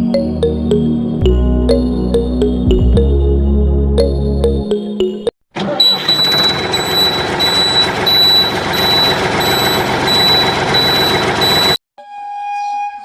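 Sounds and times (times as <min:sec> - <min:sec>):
reversing alarm beeping: 0:05.8 - 0:11.8
engine noise: 0:06.2 - 0:11.8.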